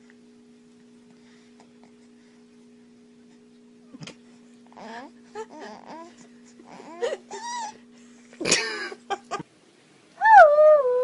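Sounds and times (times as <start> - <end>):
steady hum: 0.0 - 11.0
dog whining: 4.8 - 7.8.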